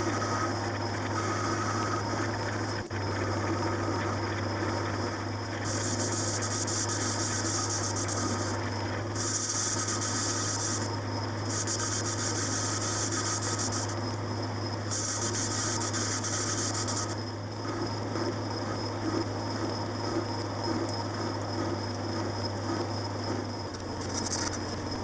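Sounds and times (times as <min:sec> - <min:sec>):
motor hum: 0:00.0 - 0:25.0
hissing metal cutting: 0:05.6 - 0:14.1, 0:14.9 - 0:17.2.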